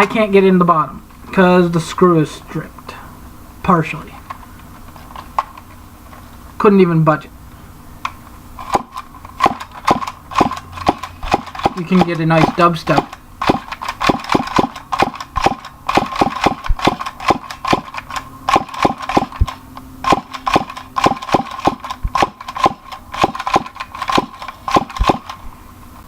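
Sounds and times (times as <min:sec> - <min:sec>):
toy gun clicks and rattles: 0:08.1 - 0:25.5.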